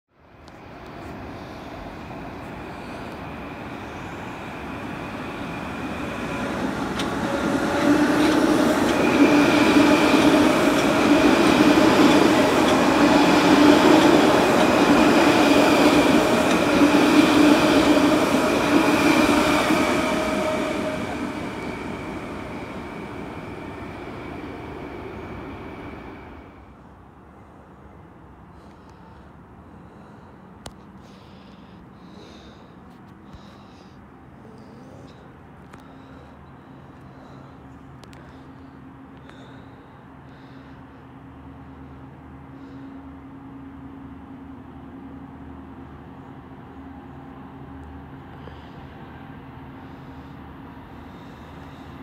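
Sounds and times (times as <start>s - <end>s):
train passing at speed: 0.2s - 52.0s
steady high whine: 0.4s - 26.9s.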